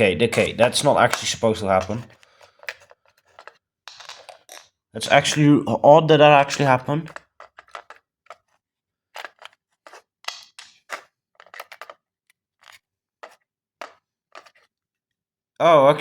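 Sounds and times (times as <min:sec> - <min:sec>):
plastic alarm clock clicks and scrapes: 0:00.4 - 0:04.6, 0:06.6 - 0:08.6, 0:09.2 - 0:12.0, 0:12.6 - 0:14.7.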